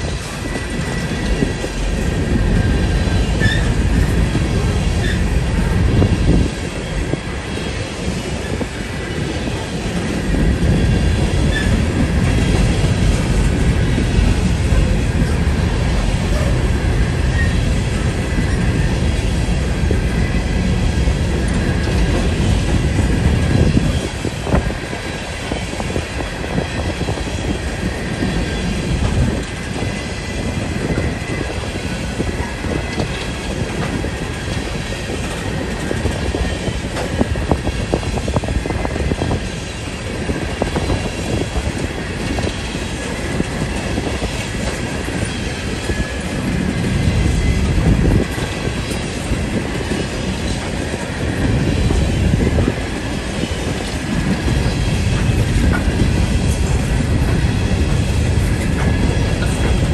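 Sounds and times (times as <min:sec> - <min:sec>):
train wheels rumbling on rails: 0:00.0 - 0:59.9
clacks over rail joints: 0:40.5 - 0:59.9.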